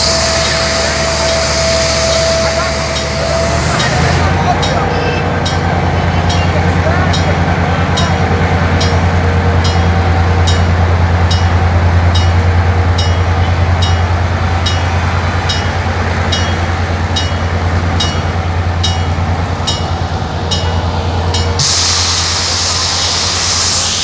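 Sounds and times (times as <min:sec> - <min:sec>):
loud hiss: 0:00.0 - 0:04.7, 0:19.8 - 0:24.0
train engine hum: 0:00.0 - 0:24.0.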